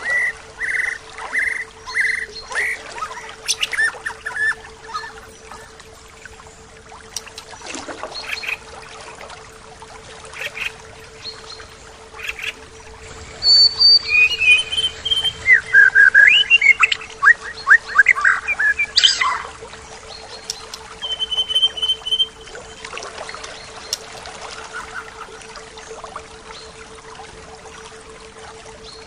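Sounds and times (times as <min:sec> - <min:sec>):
bird trill: 0:00.0 - 0:05.7, 0:08.1 - 0:08.6, 0:10.4 - 0:22.8
flowing river water: 0:00.0 - 0:29.0
songbird singing whistles: 0:10.4 - 0:19.5, 0:20.1 - 0:22.8.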